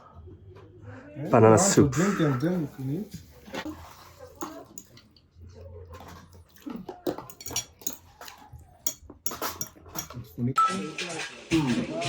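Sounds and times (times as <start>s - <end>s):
cutlery and crockery clinking: 3.5s - 5.2s, 5.9s - 11.7s.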